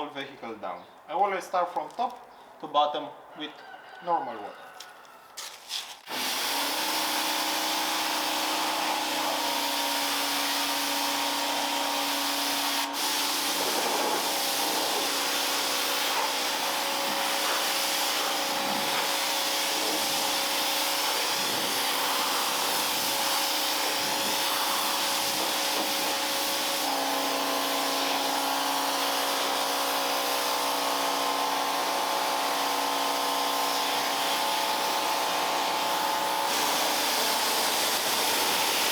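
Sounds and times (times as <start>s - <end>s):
water jet hissing: 5.7s - 30.7s, 33.7s - 38.9s
pressure washer motor humming: 6.0s - 38.9s.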